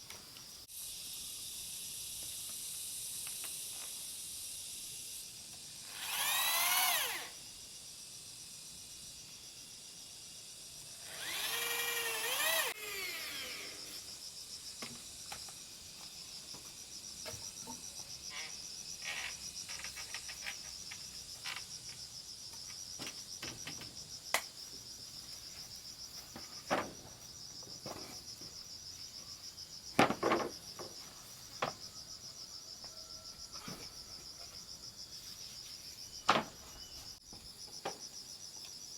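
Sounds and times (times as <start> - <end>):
insect chirring: 0.0 - 38.9
woodworking tool bursts: 5.8 - 7.4, 11.0 - 13.8.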